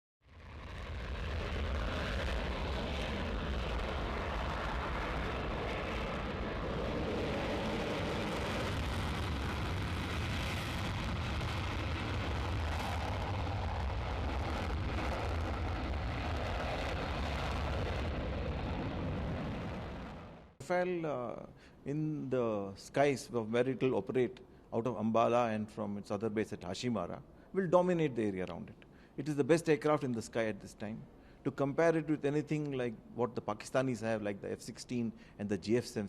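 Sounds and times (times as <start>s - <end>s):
jet engines rumbling: 0.4s - 20.9s.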